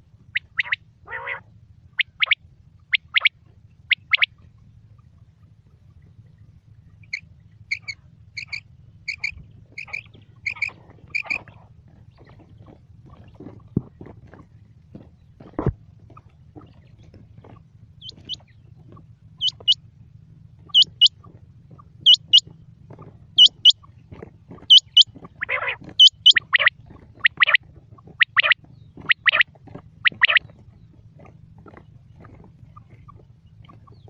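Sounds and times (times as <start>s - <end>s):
quail lower harsh double call: 0.4s - 2.4s.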